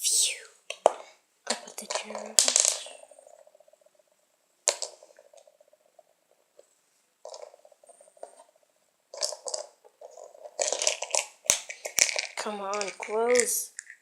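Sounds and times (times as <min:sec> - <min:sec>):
plastic toy pieces clattering: 0:00.7 - 0:03.1, 0:09.1 - 0:14.0.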